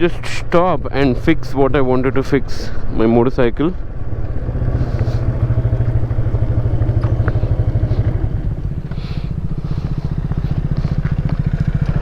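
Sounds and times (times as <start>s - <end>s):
motorcycle engine idling: 3.8s - 12.0s.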